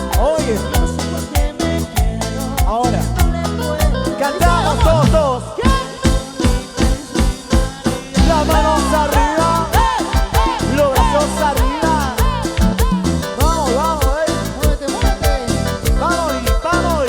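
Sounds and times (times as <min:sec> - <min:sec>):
bass: 0:00.0 - 0:17.0
live band playing: 0:00.0 - 0:17.0
melodic vocals or lead instrument: 0:00.0 - 0:17.0
steady drum beat: 0:00.0 - 0:17.0.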